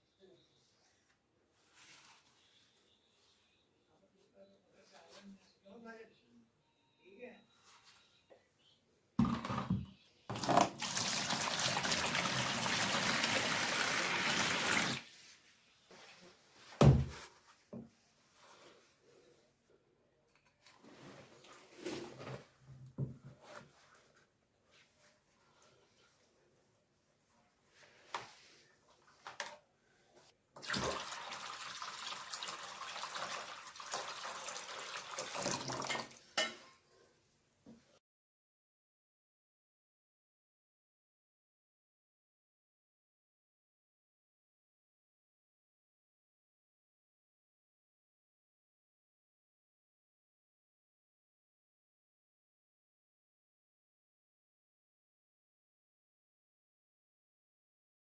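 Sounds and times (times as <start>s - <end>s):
tap water running: 10.3s - 15.0s, 30.6s - 36.2s.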